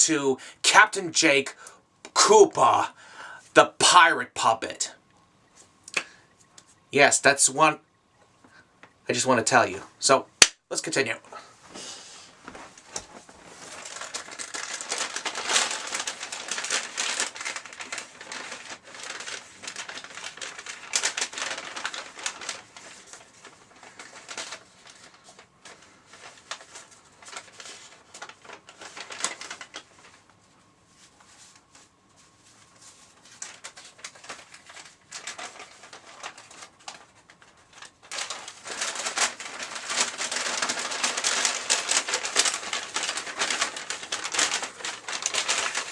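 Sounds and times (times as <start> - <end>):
paper bags rustling and crinkling: 11.4 - 45.9.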